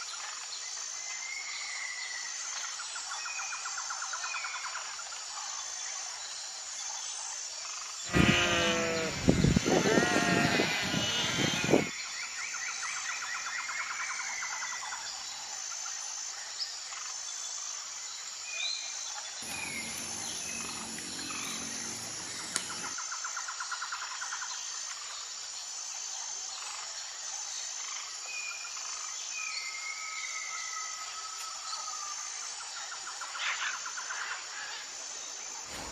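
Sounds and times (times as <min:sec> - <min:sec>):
insects droning: 0:05.6 - 0:18.4, 0:19.3 - 0:29.6
birds chirping and trilling: 0:08.1 - 0:11.9, 0:19.4 - 0:23.0
low hum with thin high tone: 0:19.4 - 0:23.0.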